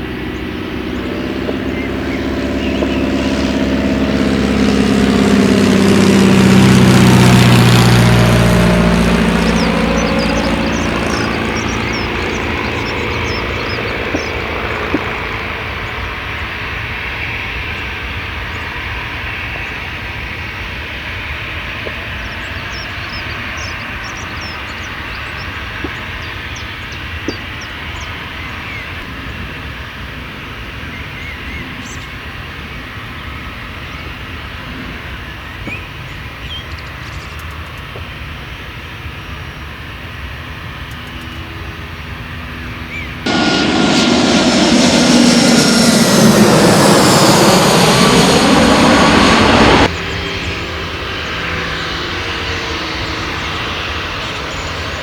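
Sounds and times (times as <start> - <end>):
small birds chirping: 0.0 - 5.6, 7.8 - 16.4, 21.8 - 29.1, 30.8 - 39.8
distant jet engines: 0.0 - 55.0.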